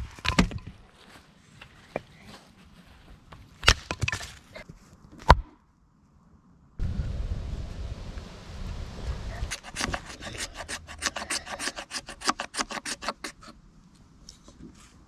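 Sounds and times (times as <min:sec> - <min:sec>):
low rumble: 0:06.8 - 0:09.5
knife scraping wood: 0:09.4 - 0:13.6.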